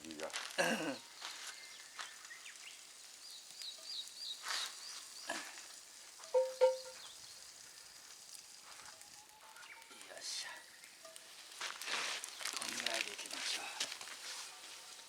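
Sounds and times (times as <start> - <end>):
food sizzling on a grill: 0.0 - 15.0
bird chirping: 1.0 - 5.3, 6.2 - 7.5.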